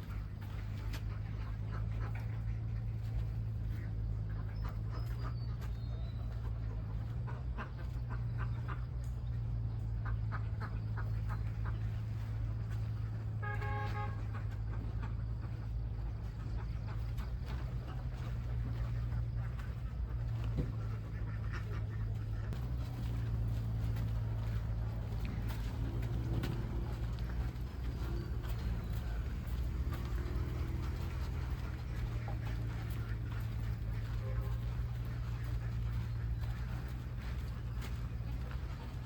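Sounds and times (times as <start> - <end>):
ducks quacking: 0.0 - 39.0
low engine hum: 0.0 - 39.0
short honk: 13.3 - 14.6, 28.2 - 35.9.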